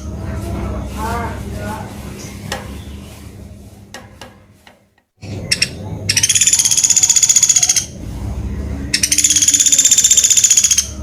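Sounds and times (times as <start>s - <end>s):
woodpecker calling: 5.2s - 8.0s, 9.0s - 11.0s.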